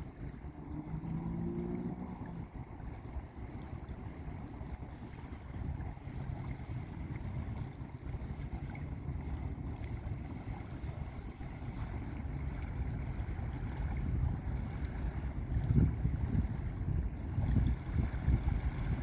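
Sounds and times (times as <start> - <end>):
waves washing onto beach: 0.0 - 19.0.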